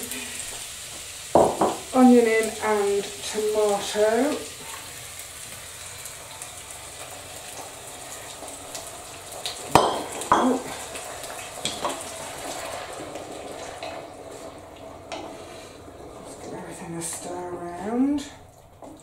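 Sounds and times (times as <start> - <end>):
food sizzling in oil: 0.0 - 19.0
knocks against a pot: 1.4 - 1.8, 9.7 - 10.6.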